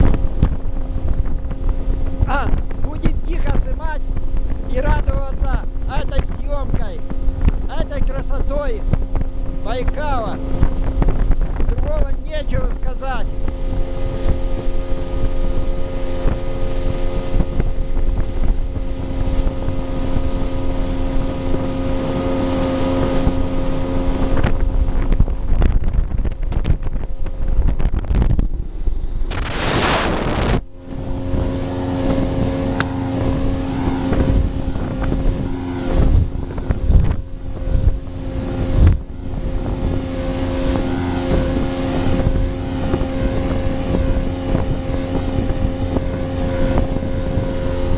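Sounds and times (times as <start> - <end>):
low thumps: 0.0 - 12.1, 24.2 - 47.9
motorboat engine running: 0.0 - 47.9
wind buffeting microphone: 0.0 - 47.9
loud rush of noise: 29.2 - 34.4.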